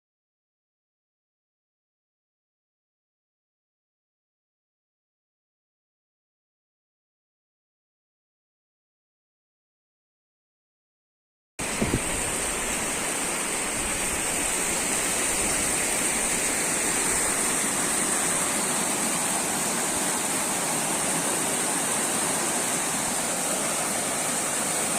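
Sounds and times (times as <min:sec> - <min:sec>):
river rushing: 0:11.6 - 0:24.9.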